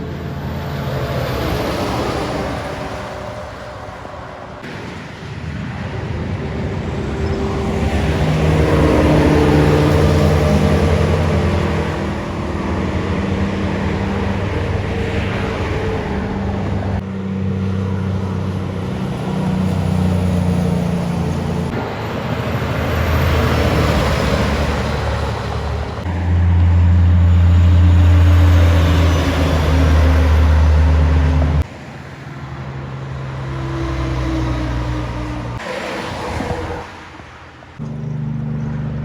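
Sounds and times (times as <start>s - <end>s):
trucks passing on a highway: 0.0s - 39.0s.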